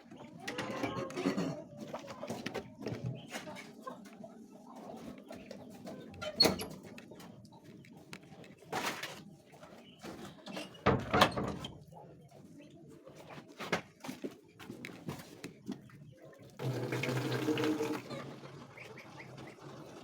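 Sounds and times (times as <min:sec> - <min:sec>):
hens clucking: 0:00.0 - 0:10.8, 0:14.3 - 0:20.0.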